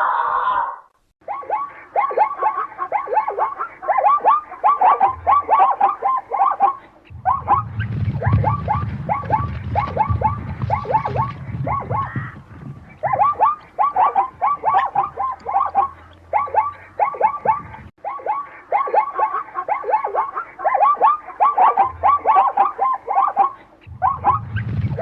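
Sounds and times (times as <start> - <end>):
squeaky animal calls: 0.0 - 25.0
low rumble: 7.1 - 13.1.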